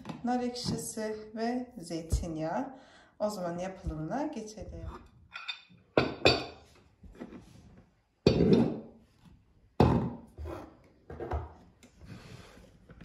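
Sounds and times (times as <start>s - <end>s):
kitchenware knocking on counter: 9.8s - 10.2s.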